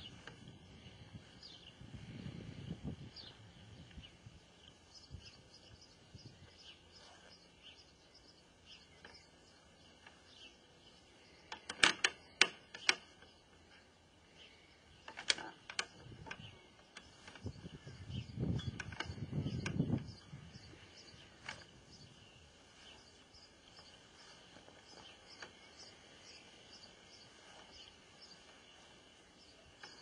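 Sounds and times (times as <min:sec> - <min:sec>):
faint bird chirps: 0:00.0 - 0:30.0
sharp clicks: 0:11.4 - 0:13.6, 0:15.0 - 0:21.8.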